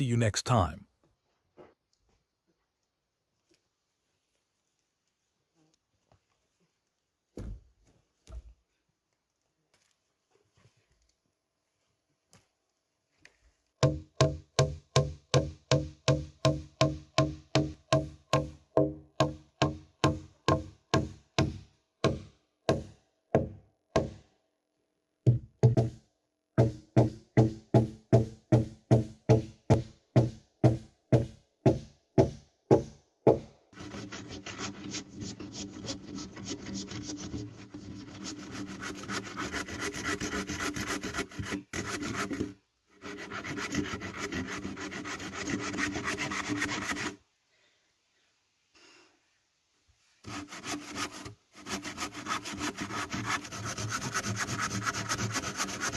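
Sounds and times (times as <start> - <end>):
hammer striking wood: 13.8 - 24.2, 25.3 - 26.0, 26.6 - 33.5
saw cutting through wood: 38.1 - 47.2, 50.3 - 55.9.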